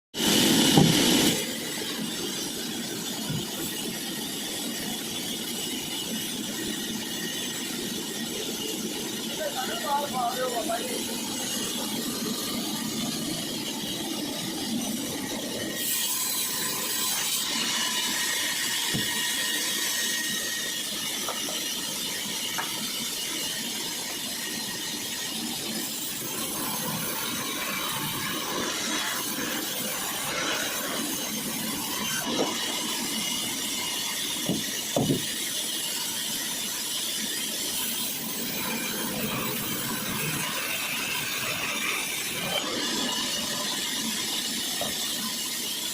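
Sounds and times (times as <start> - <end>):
saw cutting wood: 0.2 - 45.9
sharp knocks: 34.5 - 35.2.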